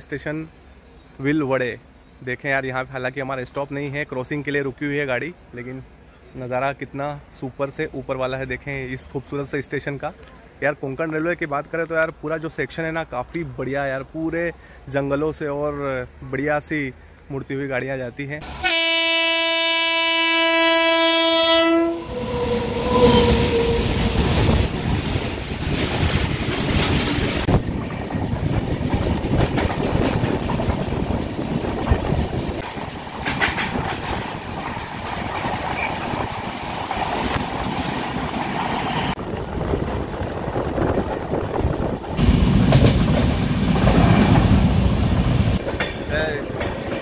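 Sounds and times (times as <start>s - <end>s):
train horn: 18.4s - 24.2s
train rumbling on rails: 21.2s - 47.0s.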